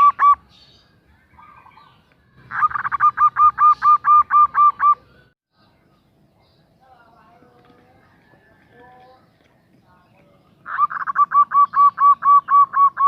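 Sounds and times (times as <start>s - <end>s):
dove calling short notes: 0.0s - 0.4s, 2.5s - 5.0s, 10.6s - 13.0s.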